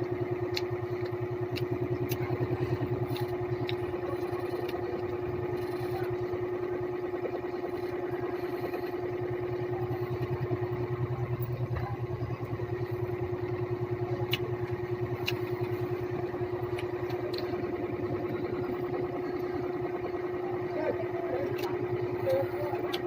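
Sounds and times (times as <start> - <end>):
pulsing motor hum: 0.0 - 23.0.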